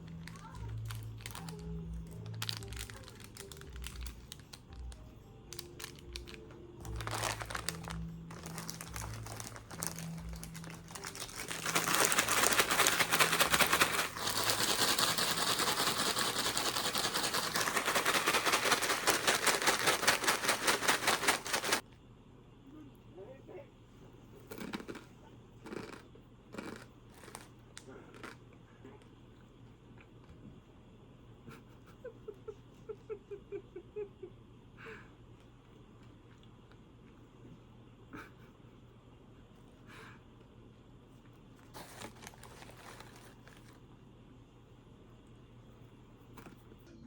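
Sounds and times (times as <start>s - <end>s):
soft background music: 0.0s - 15.0s
loud crinkling rustle: 2.2s - 4.5s, 5.8s - 21.8s, 41.7s - 43.8s.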